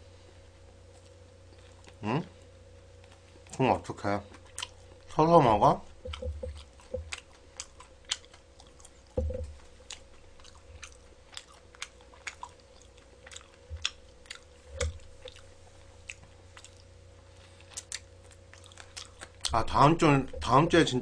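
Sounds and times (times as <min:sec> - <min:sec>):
crunchy chewing of fried chicken: 0:00.6 - 0:19.8
dull low thumps: 0:06.0 - 0:07.2, 0:09.2 - 0:09.6.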